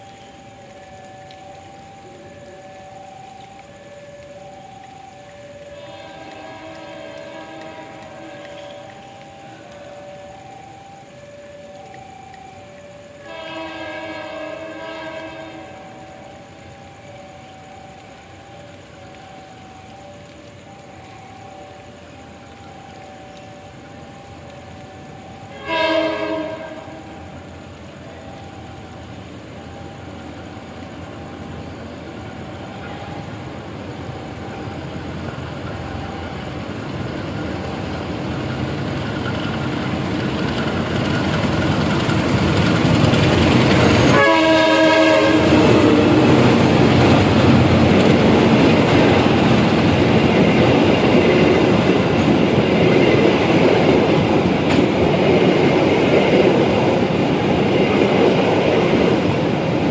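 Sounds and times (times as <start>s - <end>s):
train rumbling past: 0.0s - 59.9s
locomotive horn: 5.6s - 9.0s, 13.2s - 16.3s, 25.5s - 27.3s, 43.7s - 48.0s
wheels clacking on rail joints: 35.0s - 44.5s, 45.1s - 59.9s.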